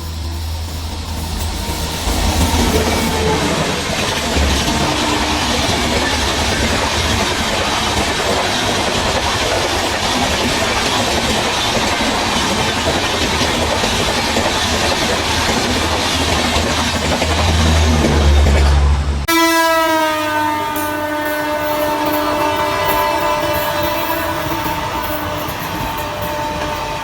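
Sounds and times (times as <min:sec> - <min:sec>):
rail-joint clatter: 0:00.0 - 0:19.0
train passing at high speed: 0:00.0 - 0:27.0.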